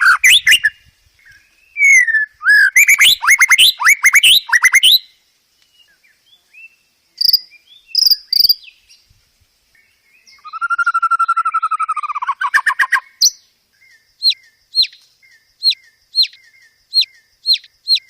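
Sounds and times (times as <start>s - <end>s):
bird singing whistled sweeps: 0.0s - 9.1s, 9.8s - 18.0s
faint bird calls: 9.8s - 18.0s.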